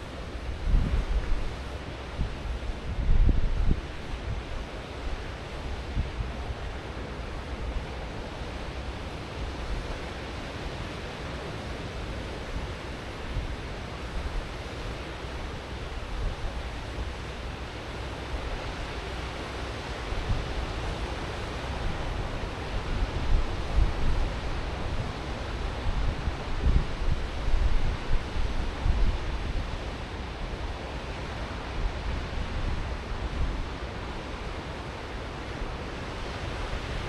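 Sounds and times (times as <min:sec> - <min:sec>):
wind buffeting microphone: 0:00.0 - 0:04.7, 0:21.5 - 0:34.1
ocean surf washing ashore: 0:00.0 - 0:37.0.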